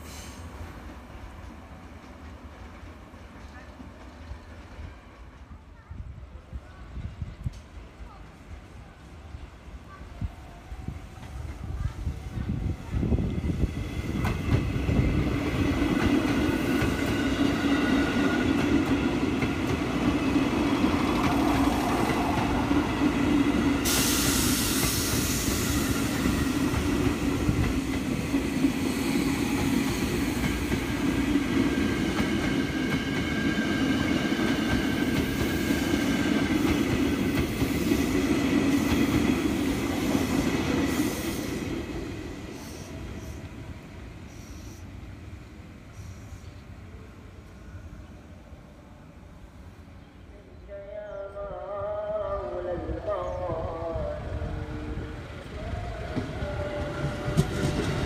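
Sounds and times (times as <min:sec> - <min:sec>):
train passing on track: 0:00.0 - 0:58.0
sudden high hiss: 0:23.7 - 0:26.5.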